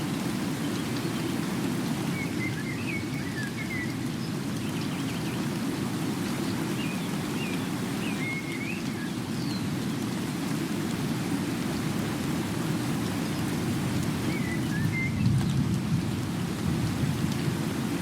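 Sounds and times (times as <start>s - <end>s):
steady rain falling: 0.0s - 18.0s
faint wavering bird whistles: 8.1s - 8.9s.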